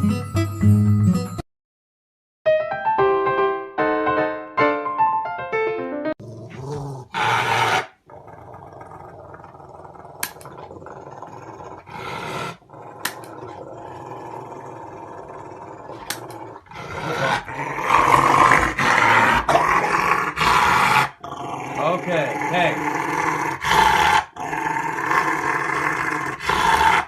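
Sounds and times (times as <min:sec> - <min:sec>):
dog growling: 0:06.2 - 0:27.0.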